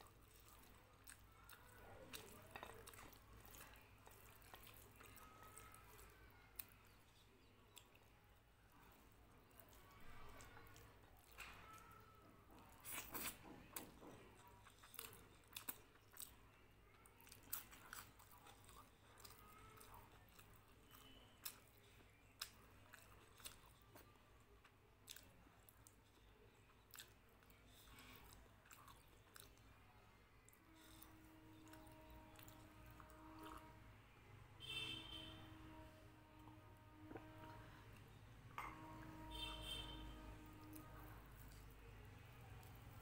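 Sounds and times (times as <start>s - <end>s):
person chewing crunchy food: 0.0s - 8.1s, 12.6s - 29.7s, 30.6s - 33.7s.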